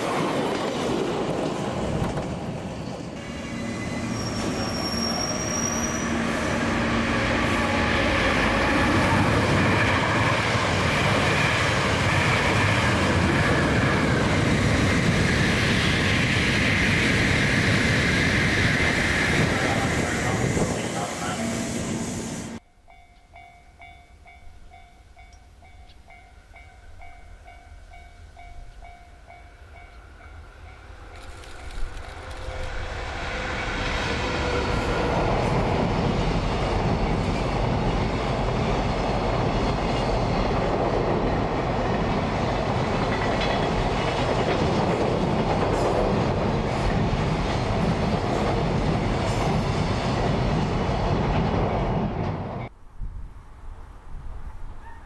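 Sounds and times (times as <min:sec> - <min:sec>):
train wheels rumbling and clattering: 0:00.0 - 0:21.4, 0:31.0 - 0:52.7.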